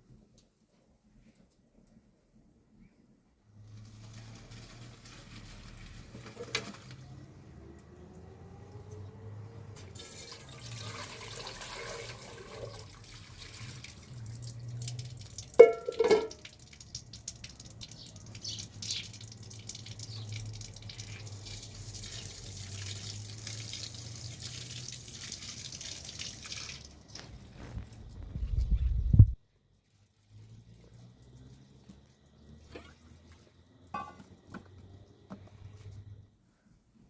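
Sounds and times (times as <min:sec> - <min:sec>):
water running and dripping: 0:03.6 - 0:07.2, 0:09.8 - 0:28.1.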